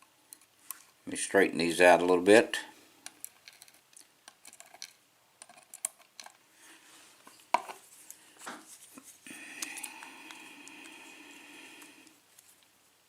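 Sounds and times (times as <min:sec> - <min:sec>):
steady hum: 0:06.6 - 0:13.0.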